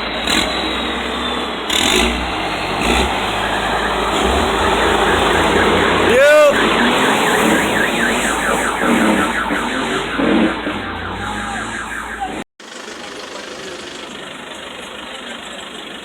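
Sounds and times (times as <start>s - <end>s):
vehicle and street noise: 0.0s - 16.0s
electronic alarm chirping: 2.9s - 12.4s.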